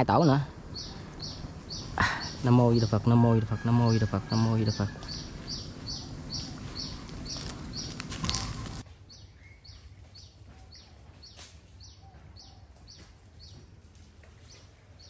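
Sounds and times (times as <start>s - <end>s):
small bird chirping: 0.2s - 3.2s, 4.0s - 13.7s
rustling noise: 5.3s - 9.0s.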